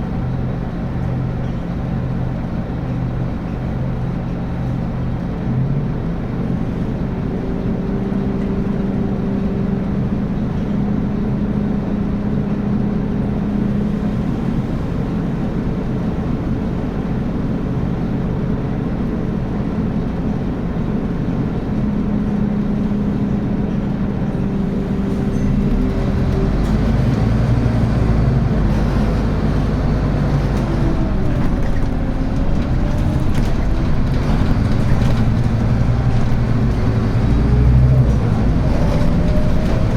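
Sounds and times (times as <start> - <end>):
bus diesel engine drone: 0.0 - 39.9.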